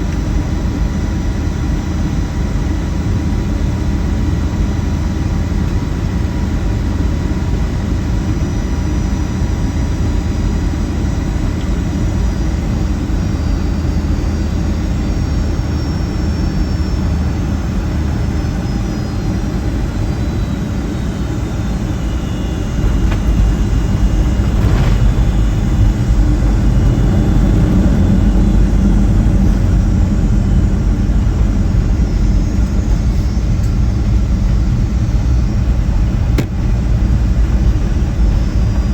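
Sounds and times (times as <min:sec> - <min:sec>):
aircraft cabin engine rumble: 0:00.0 - 0:38.9
faint falling whines: 0:10.9 - 0:35.1.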